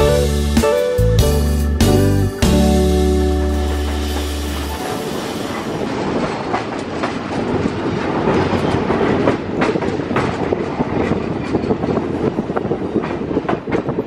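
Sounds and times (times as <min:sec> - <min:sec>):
train wheels rumbling on rails: 0:00.0 - 0:14.0
wheels clicking over rail joints: 0:03.7 - 0:14.0.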